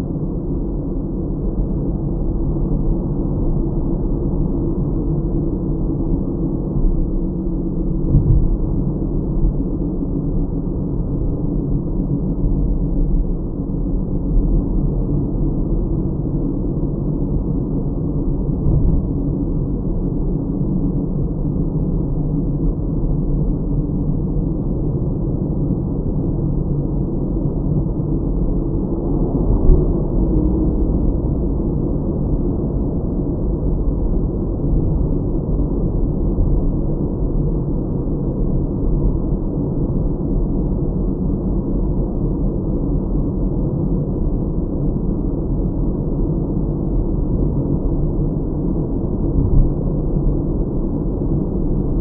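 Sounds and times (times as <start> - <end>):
car road and engine noise: 0.0 - 22.0, 22.6 - 37.3, 49.2 - 50.3.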